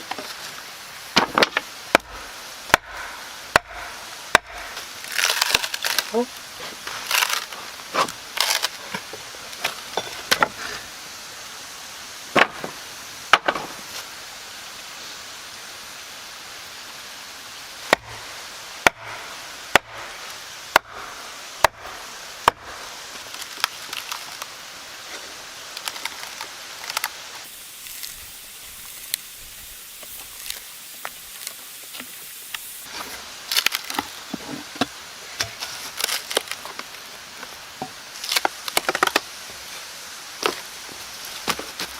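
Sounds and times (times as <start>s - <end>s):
tool strikes on wood: 1.2s - 4.9s, 17.9s - 20.1s, 20.7s - 22.7s.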